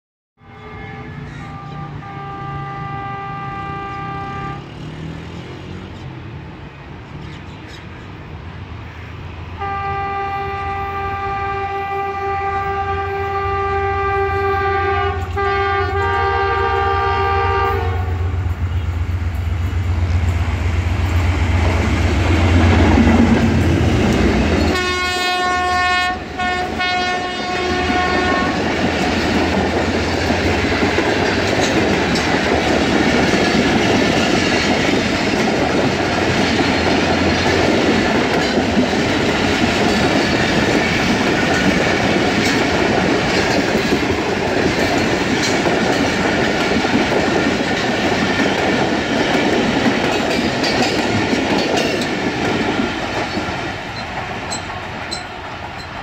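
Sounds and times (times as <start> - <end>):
locomotive horn blasts: 0.4 - 5.0, 9.6 - 19.0, 24.6 - 28.7
diesel engine low rumble: 18.0 - 24.7
coaches clattering over rails: 18.4 - 56.0.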